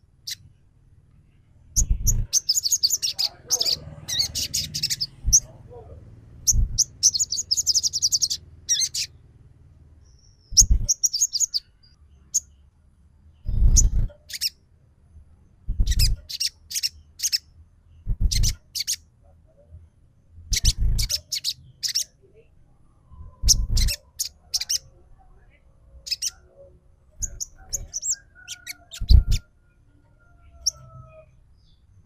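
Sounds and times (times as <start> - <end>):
low rumble: 1.7 - 2.4, 3.7 - 11.0, 13.4 - 14.1, 15.6 - 16.2, 18.0 - 18.6, 22.8 - 24.0
bird call recording: 1.7 - 9.3, 10.1 - 12.6, 13.4 - 14.6, 15.7 - 19.1, 20.5 - 22.2, 23.1 - 25.0, 26.0 - 29.5, 30.2 - 31.9
sharp high-pitched chirps: 1.8 - 5.6, 6.4 - 9.1, 10.1 - 11.6, 13.5 - 14.5, 15.7 - 17.4, 18.1 - 19.0, 20.5 - 22.1, 23.4 - 24.8, 27.2 - 29.5.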